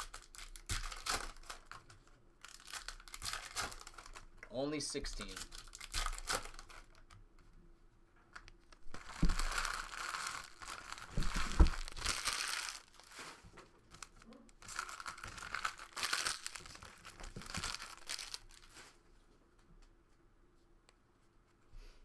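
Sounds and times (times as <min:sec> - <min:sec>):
plastic wrappers crinkling: 0:00.0 - 0:07.5, 0:08.3 - 0:19.0
dull thumps: 0:09.0 - 0:09.8.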